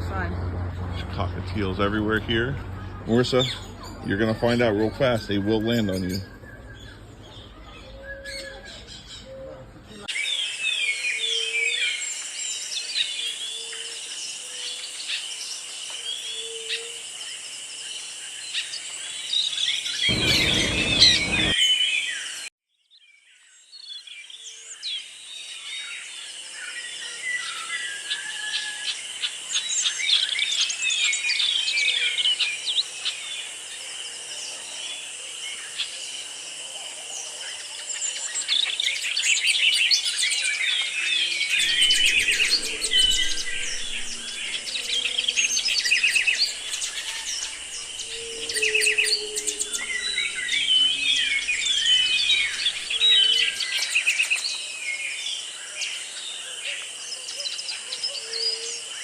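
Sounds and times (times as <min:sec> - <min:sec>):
loud low rumble: 0:20.1 - 0:21.6, 0:41.6 - 0:53.4
parakeets chirping and chattering: 0:20.1 - 0:21.6, 0:41.6 - 0:53.4
steady high hiss: 0:20.1 - 0:21.6, 0:41.6 - 0:53.4.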